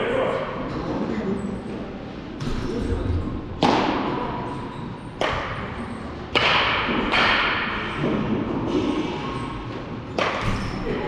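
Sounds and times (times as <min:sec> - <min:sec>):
sharp baseball impacts: 0:05.2 - 0:08.4, 0:10.1 - 0:10.6.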